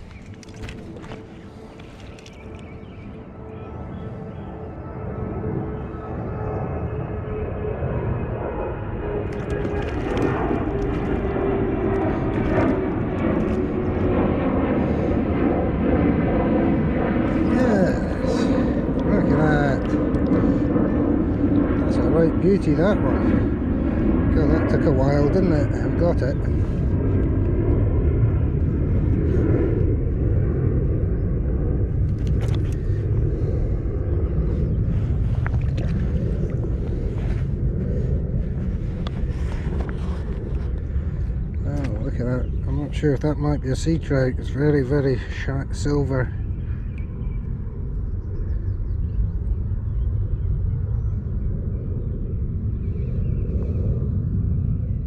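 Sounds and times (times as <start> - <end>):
strong wind on microphone: 0.0 - 55.0.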